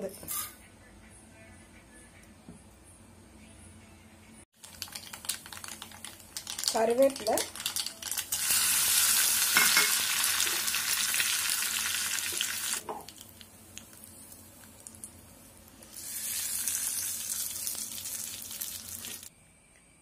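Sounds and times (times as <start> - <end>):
leaves sizzling in hot oil: 4.6 - 19.3.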